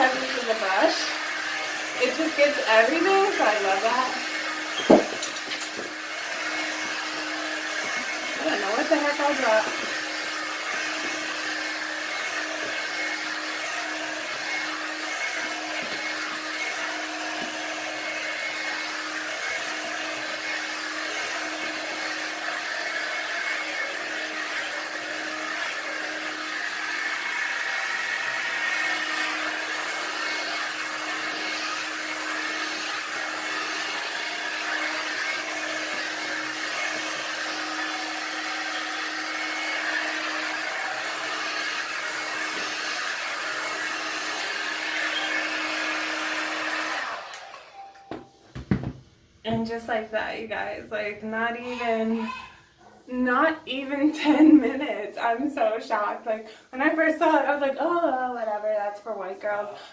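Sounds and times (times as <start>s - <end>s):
hair dryer blowing air: 0.0s - 52.4s, 53.1s - 59.9s.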